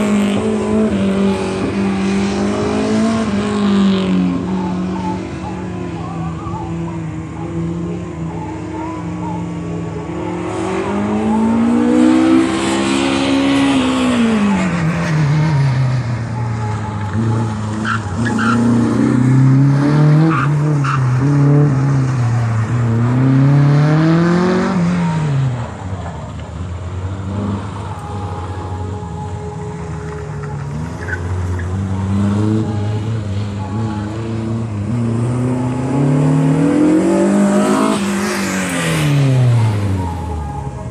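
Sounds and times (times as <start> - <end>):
racing truck engine revving: 30.4 - 40.6.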